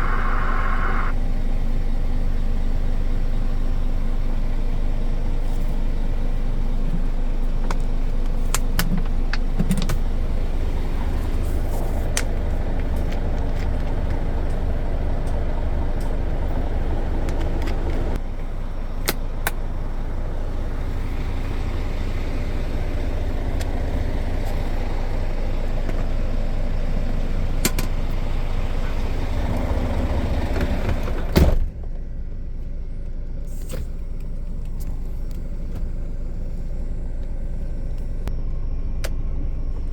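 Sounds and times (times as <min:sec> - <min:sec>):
truck diesel engine rumble: 0:00.0 - 0:01.1, 0:06.2 - 0:38.2
road noise: 0:00.0 - 0:01.2.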